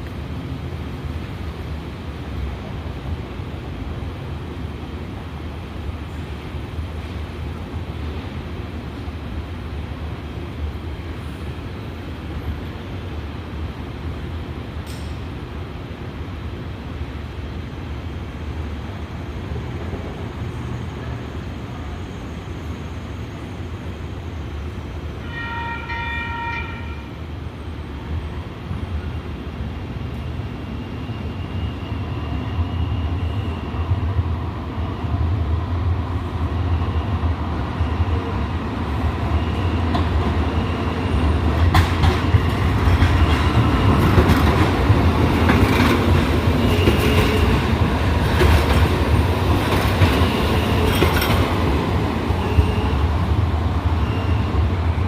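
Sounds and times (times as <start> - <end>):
light rail train running: 0.0 - 55.0
train horn blast: 25.2 - 27.1.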